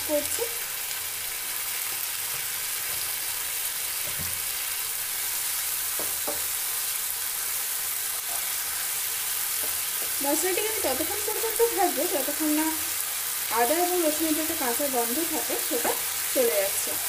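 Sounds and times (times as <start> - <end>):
onions sizzling in hot oil: 0.0 - 17.0
spatula knocking against pan: 5.9 - 6.5.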